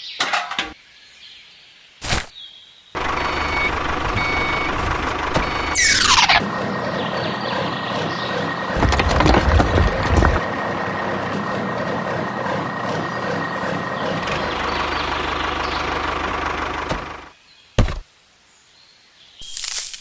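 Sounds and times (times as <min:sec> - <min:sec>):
small tractor motor running: 0:03.0 - 0:17.3.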